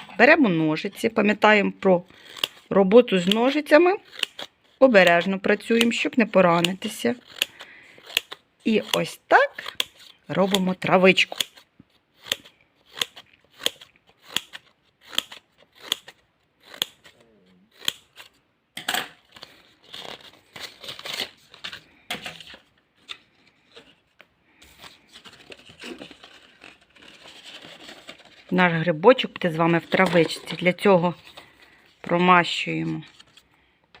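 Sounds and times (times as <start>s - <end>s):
scissors snipping paper: 2.1s - 18.4s
paper rustling: 19.2s - 34.0s.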